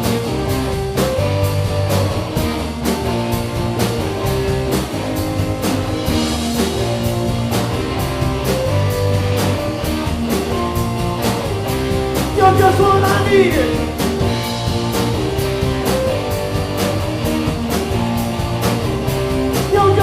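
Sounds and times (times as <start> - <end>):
bass: 0.0 - 20.0
drum kit beat: 0.0 - 20.0
electric guitar lines: 0.0 - 20.0.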